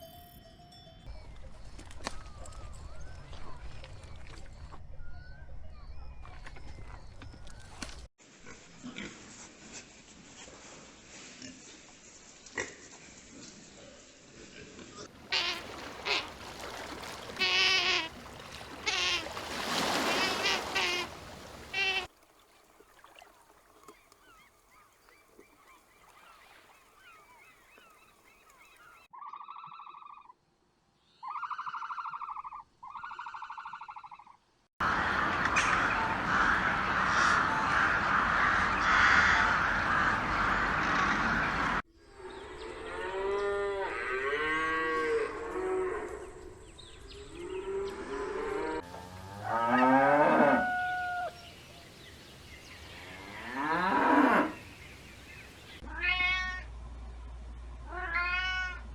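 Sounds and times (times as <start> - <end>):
birds honking: 15.2 - 22.2, 34.8 - 41.8
loud noisy bird calls: 15.3 - 22.1, 34.8 - 41.8
evenly pitched bird calls: 23.8 - 30.4.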